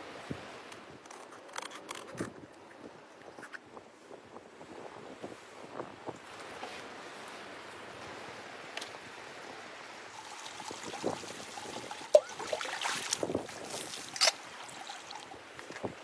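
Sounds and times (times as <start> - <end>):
running water: 9.9 - 16.0.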